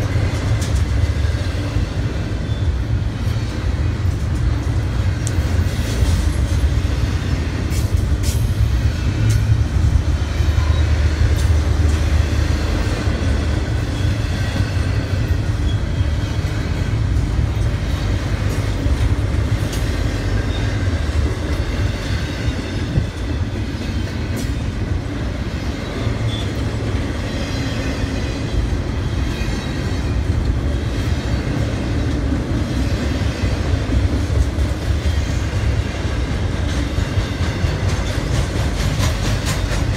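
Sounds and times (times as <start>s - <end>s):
freight train rumbling past: 0.0s - 39.9s
wheels clicking over rail joints: 0.0s - 39.9s.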